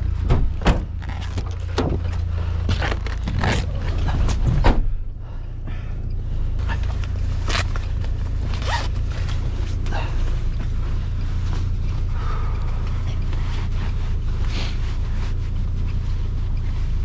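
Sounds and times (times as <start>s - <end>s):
vehicle engine idling: 0.0s - 17.0s
scrapes and crunches: 0.1s - 4.6s, 6.6s - 12.0s.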